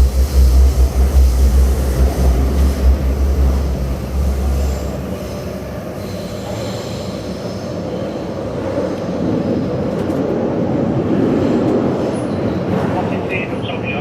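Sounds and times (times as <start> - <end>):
heavy low train rumble: 0.0 - 14.0
train running noise: 0.0 - 14.0
faint high wheel squeal: 4.6 - 8.5.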